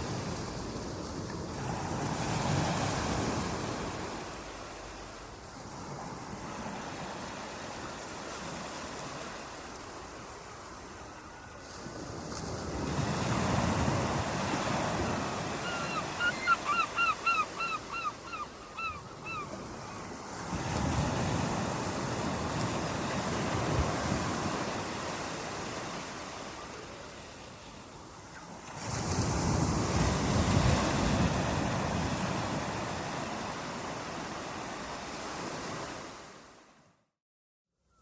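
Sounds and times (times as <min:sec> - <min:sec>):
waves washing ashore: 0:00.0 - 0:36.8
bird calling: 0:15.4 - 0:20.0.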